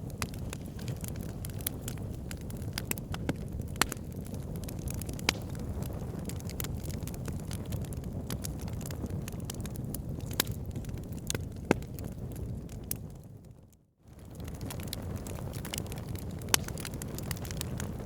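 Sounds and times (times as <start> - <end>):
fire crackling: 0.0 - 18.0.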